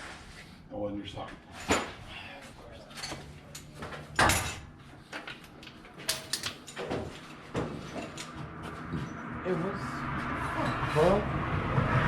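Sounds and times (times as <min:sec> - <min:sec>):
metal tools clanking: 0:02.9 - 0:04.7, 0:06.0 - 0:07.1, 0:07.8 - 0:08.4.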